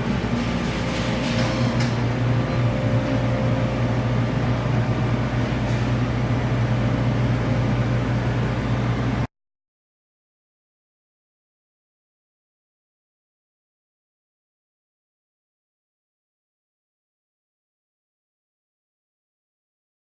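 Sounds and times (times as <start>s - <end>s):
punch press machine humming: 0.0s - 9.3s.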